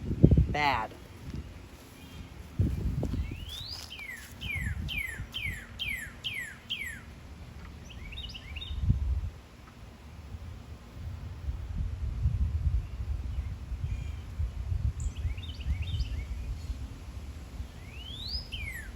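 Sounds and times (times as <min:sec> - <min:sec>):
songbird whistling and chirping: 0:03.1 - 0:07.1, 0:07.8 - 0:08.9, 0:15.0 - 0:16.7, 0:17.8 - 0:18.9.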